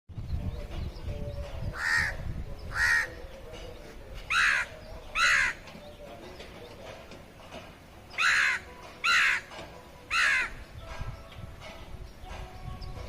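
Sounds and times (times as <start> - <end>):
crow cawing: 1.8 - 3.2, 4.3 - 5.6, 8.2 - 9.5, 10.1 - 10.6.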